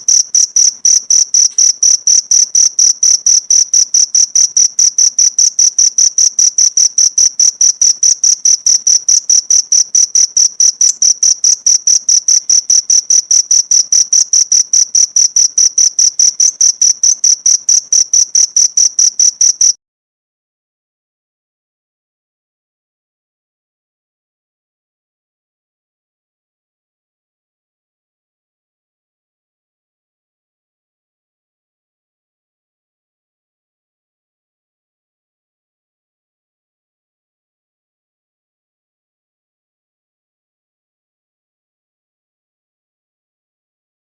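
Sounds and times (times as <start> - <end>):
cricket chirping: 0.0 - 19.8.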